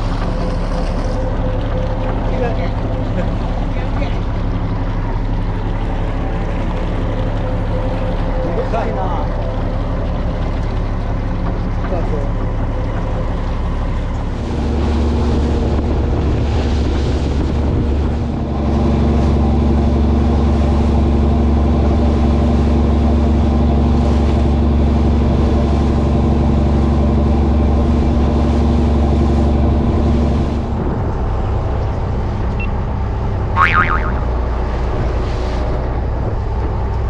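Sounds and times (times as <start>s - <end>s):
boat engine running: 0.0s - 37.0s.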